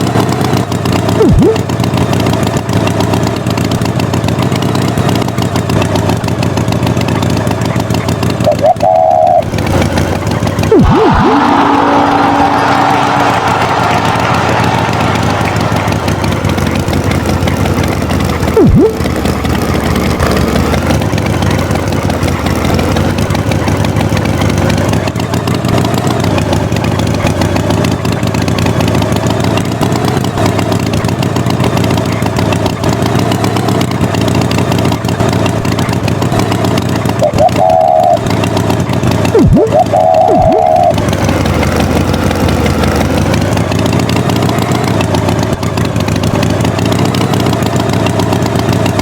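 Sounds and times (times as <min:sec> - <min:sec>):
tractor engine running: 0:00.0 - 0:49.0
short wavering high tone: 0:01.2 - 0:01.7, 0:08.5 - 0:09.5, 0:10.7 - 0:13.7, 0:18.6 - 0:19.1, 0:37.2 - 0:38.3, 0:39.4 - 0:41.0
swooping sound effect: 0:01.2 - 0:01.7, 0:08.5 - 0:09.5, 0:10.6 - 0:17.4, 0:18.5 - 0:19.1, 0:37.2 - 0:38.2, 0:39.3 - 0:41.0.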